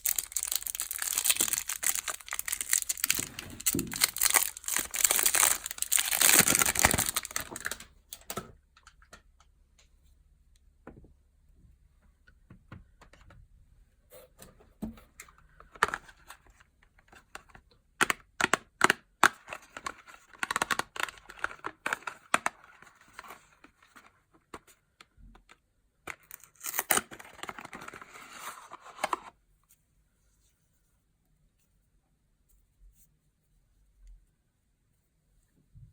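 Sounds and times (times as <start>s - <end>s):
packaging rustling: 0.0s - 7.9s
packaging crinkling and tearing: 0.0s - 8.3s, 19.6s - 23.3s, 26.1s - 29.3s.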